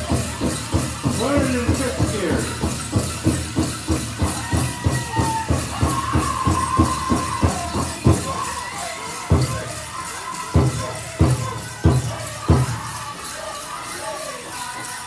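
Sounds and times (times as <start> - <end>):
hard drum strikes: 0.0 - 8.3
fast steady drumbeat: 0.0 - 13.5
dancers' bells jingling: 0.0 - 15.0
drum group singing: 0.0 - 15.0.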